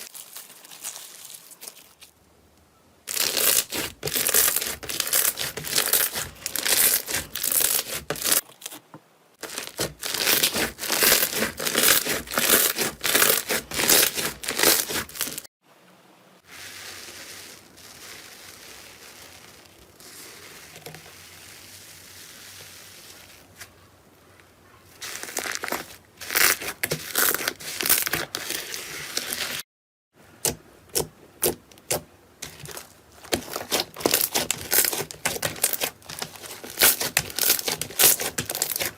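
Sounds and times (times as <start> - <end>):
soft steady hiss: 0.0 - 3.2, 15.6 - 26.2
slime crackling and popping: 3.1 - 8.8, 9.4 - 15.5, 31.4 - 38.9.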